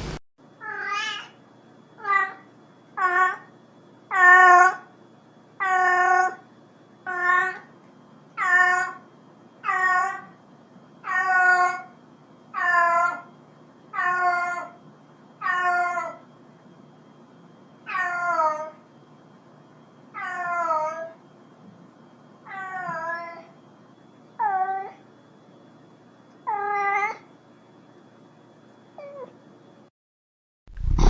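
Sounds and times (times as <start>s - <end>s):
cat meowing: 5.6s - 6.4s, 12.6s - 13.2s, 15.4s - 16.2s, 22.5s - 23.4s.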